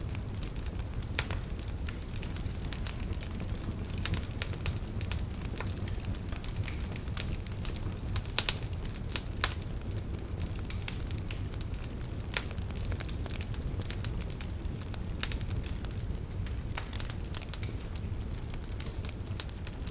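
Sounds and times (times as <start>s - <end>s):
campfire crackling: 0.0s - 19.9s.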